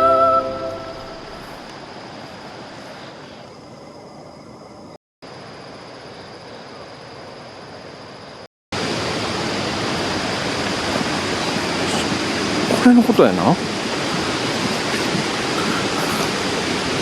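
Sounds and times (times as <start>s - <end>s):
faint high steady tone: 0.0s - 1.6s
outdoor background noise: 0.0s - 17.0s.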